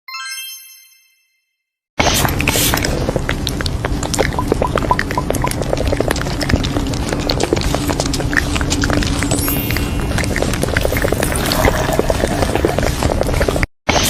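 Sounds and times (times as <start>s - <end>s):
bright chime: 0.1s - 1.6s.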